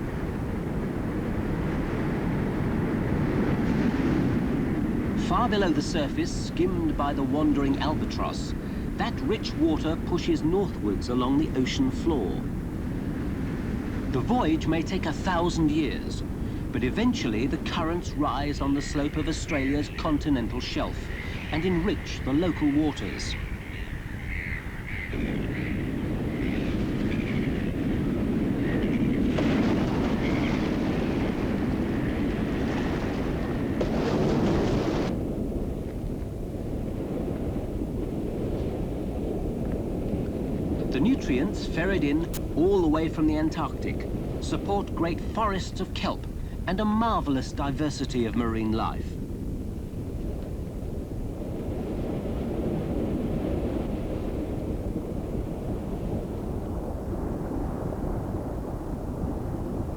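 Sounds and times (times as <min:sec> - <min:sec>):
ocean water surging: 0:00.0 - 0:35.3, 0:40.6 - 0:49.4.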